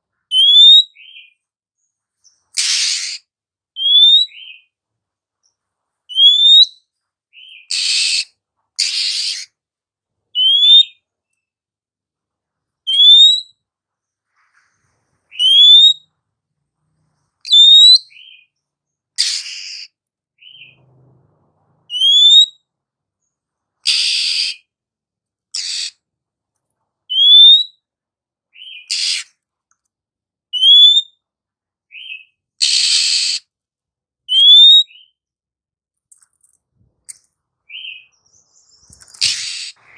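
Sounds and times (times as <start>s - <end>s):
harsh rasping bird calls: 2.2s - 4.7s, 6.1s - 9.6s, 19.2s - 20.9s, 23.8s - 24.7s, 25.5s - 26.0s, 28.5s - 29.4s, 31.9s - 33.5s, 37.0s - 39.9s.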